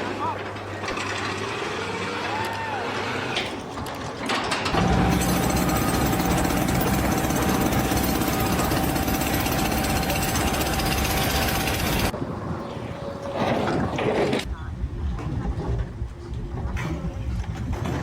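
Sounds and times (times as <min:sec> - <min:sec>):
machinery noise with whine: 0:04.7 - 0:12.2.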